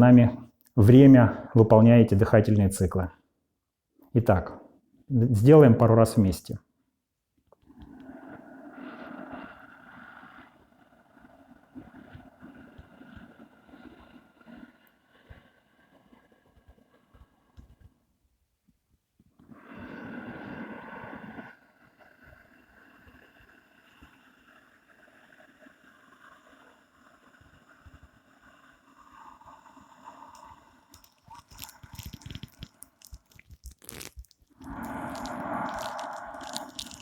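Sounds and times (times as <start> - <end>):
person breathing: 28.9 - 37.0
clicks and rustles: 30.4 - 37.0.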